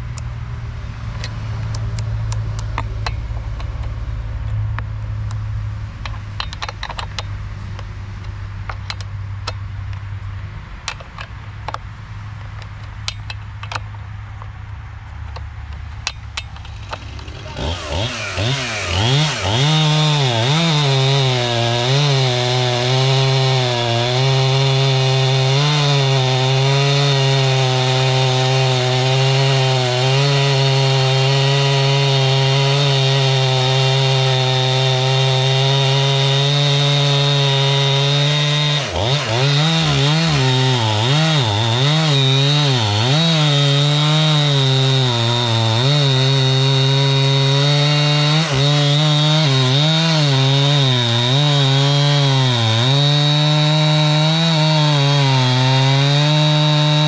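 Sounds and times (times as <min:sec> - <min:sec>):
chainsaw cutting through log: 0:16.1 - 0:57.0.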